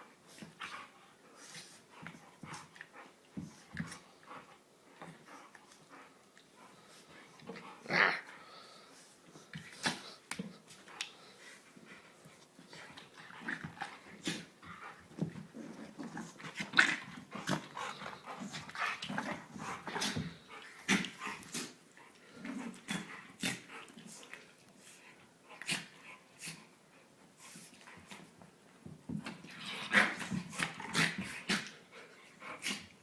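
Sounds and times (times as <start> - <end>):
dogs play-growling: 0.4 - 8.4, 12.6 - 24.5, 25.5 - 26.7, 29.3 - 33.0.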